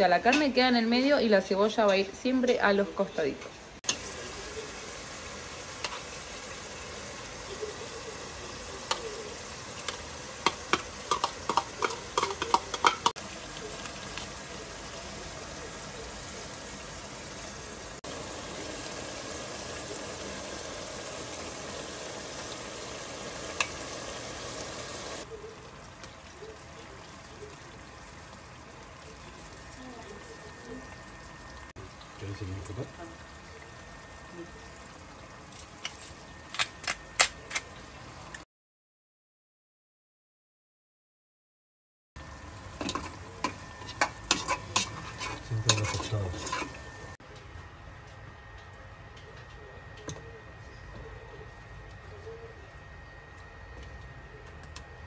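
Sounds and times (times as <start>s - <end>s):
meat and vegetables sizzling: 3.8s - 38.4s, 42.2s - 47.2s
spoon knocking against pot: 10.4s - 13.1s.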